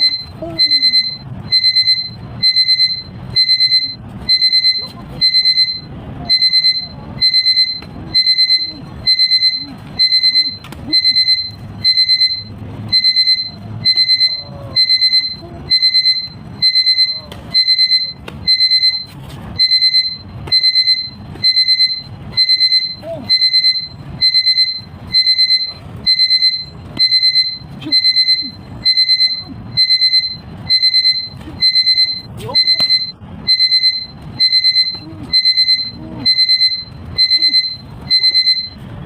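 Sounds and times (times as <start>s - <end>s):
electronic alarm beeping: 0.0s - 38.9s.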